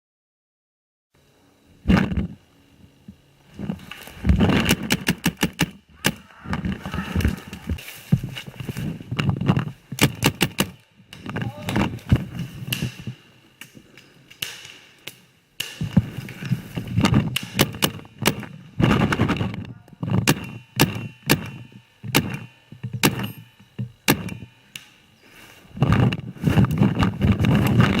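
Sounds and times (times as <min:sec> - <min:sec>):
paintball markers firing pops: 0:04.6 - 0:06.2, 0:09.9 - 0:11.8, 0:12.7 - 0:19.5, 0:20.2 - 0:25.0
rustling through undergrowth: 0:06.2 - 0:13.4, 0:22.9 - 0:28.0.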